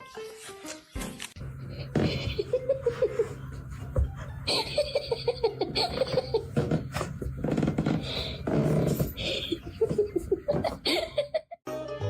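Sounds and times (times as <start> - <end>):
person laughing: 1.9 - 3.6, 4.5 - 6.9, 9.2 - 11.6.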